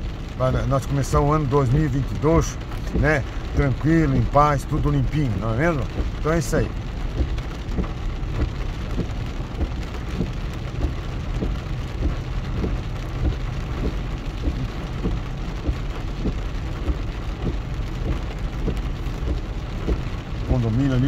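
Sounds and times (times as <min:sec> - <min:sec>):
low constant rumble: 0:00.0 - 0:21.0
raindrops striking close by: 0:00.0 - 0:21.0
steady rain: 0:00.0 - 0:21.0.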